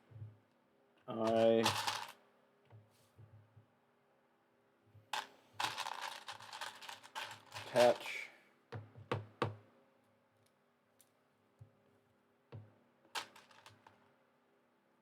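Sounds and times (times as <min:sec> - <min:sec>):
plastic bricks clicking together: 0:01.2 - 0:02.2.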